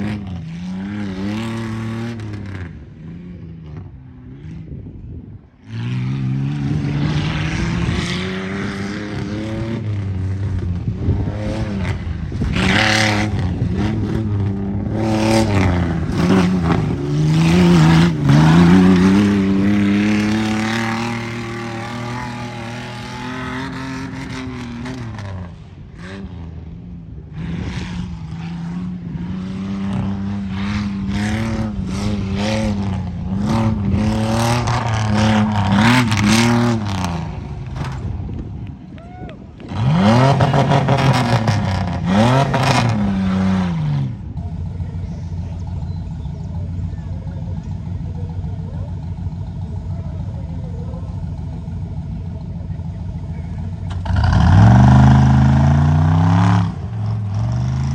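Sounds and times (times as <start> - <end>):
truck engine revving hard: 0.0 - 4.7, 5.6 - 38.5, 39.6 - 57.9.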